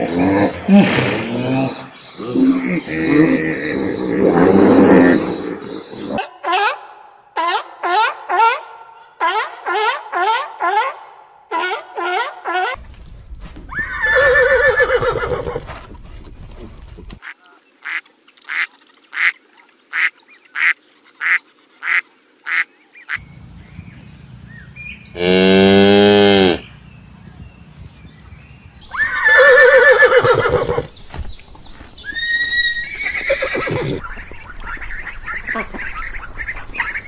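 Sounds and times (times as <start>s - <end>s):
horse whinnying: 13.7s - 17.2s, 28.9s - 30.9s, 32.0s - 34.0s
long low animal call: 25.1s - 26.7s.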